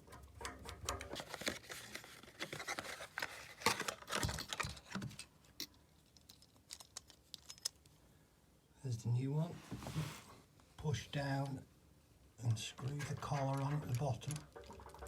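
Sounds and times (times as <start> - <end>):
plastic bits clicking and scraping: 0.1 - 8.0, 12.5 - 15.0.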